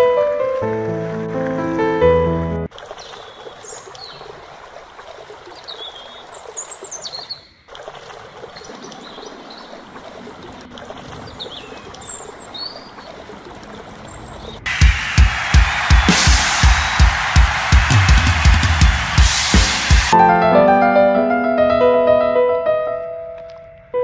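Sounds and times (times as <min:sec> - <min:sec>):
small birds chirping: 0:03.0 - 0:04.3, 0:05.5 - 0:07.7, 0:11.3 - 0:14.7.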